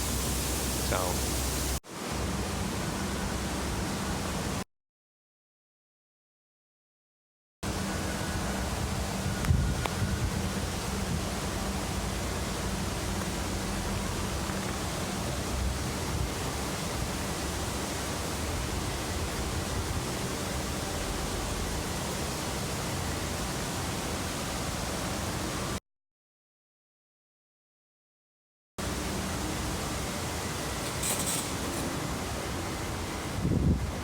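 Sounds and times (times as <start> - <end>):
falling water rushing: 0.0 - 2.8, 10.4 - 25.8, 28.8 - 34.0.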